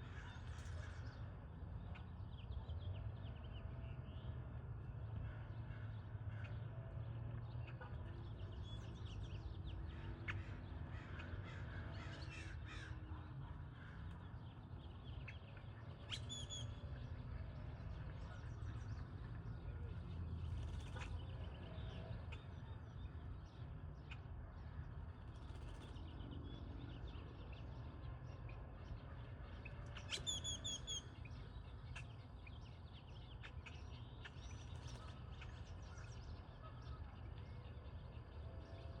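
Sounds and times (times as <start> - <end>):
blackbirds chirping: 8.0 - 39.0.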